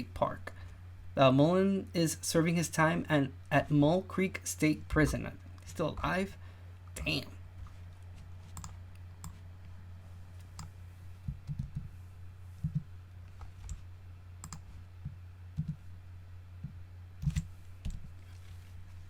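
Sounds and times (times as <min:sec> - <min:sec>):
low electrical hum: 0:00.0 - 0:19.0
computer clicks and taps: 0:08.5 - 0:09.4, 0:10.5 - 0:11.9, 0:14.4 - 0:15.8.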